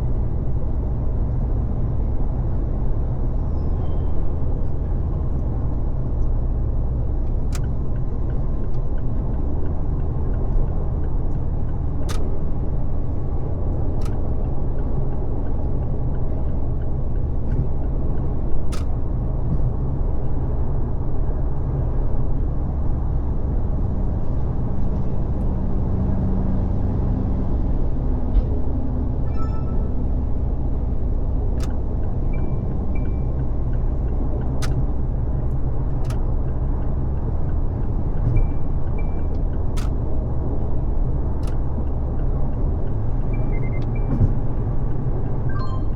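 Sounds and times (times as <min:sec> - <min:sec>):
car engine noise: 0:00.0 - 0:45.9
road and tyre rumble: 0:00.0 - 0:45.9
sharp clicks: 0:11.7 - 0:12.4, 0:13.9 - 0:14.3, 0:18.7 - 0:19.0, 0:34.4 - 0:34.9, 0:39.3 - 0:40.1, 0:41.4 - 0:41.7.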